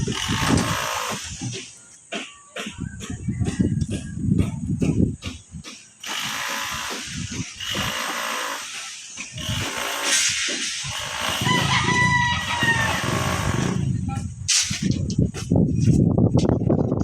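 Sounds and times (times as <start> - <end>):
outdoor background noise: 0.0 - 17.0
rooster crowing: 11.4 - 13.7.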